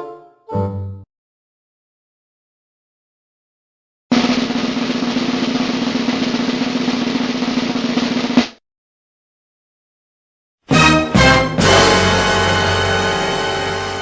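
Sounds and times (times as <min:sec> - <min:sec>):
snare drum roll: 0:04.1 - 0:08.6.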